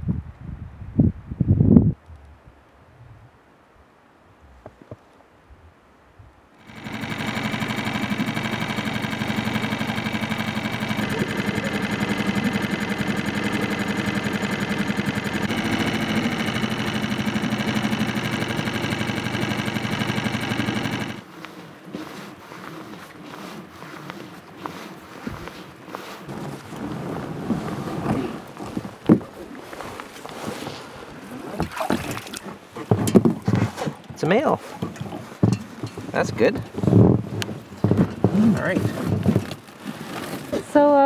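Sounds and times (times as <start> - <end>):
wind noise: 0.0 - 3.4
motor running with mechanical rattle: 6.6 - 21.6, 31.6 - 40.9.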